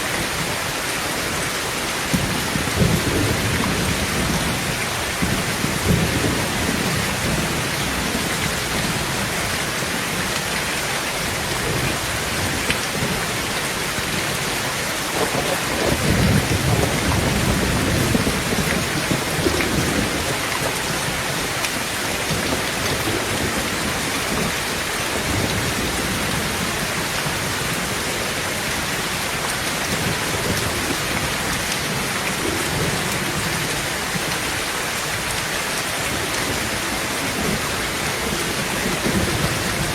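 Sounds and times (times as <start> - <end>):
heavy rain on a tin roof: 0.0 - 39.9
thunder rumbling: 2.1 - 29.2, 36.0 - 39.9.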